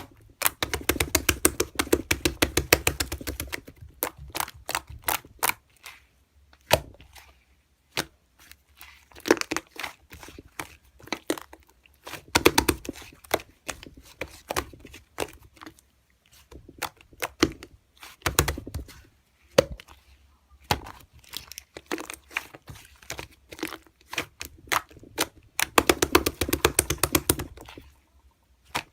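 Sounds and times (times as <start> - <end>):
sharp clicks and taps: 0.4 - 3.8, 12.3 - 13.0, 25.2 - 27.8.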